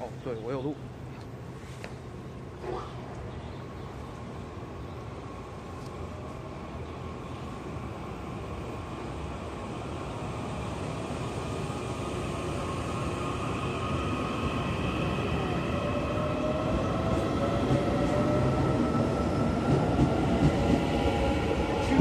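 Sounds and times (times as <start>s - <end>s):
electric train accelerating: 9.8s - 22.0s.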